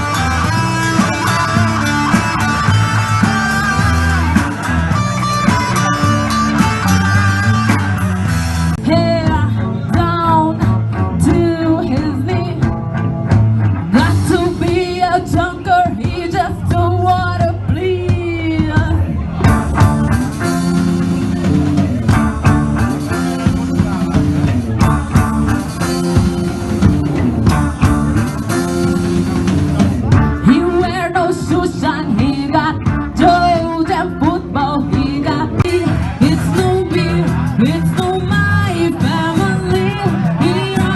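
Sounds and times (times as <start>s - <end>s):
wavering lead melody: 0.0s - 8.8s
rock band playing live: 0.0s - 40.9s.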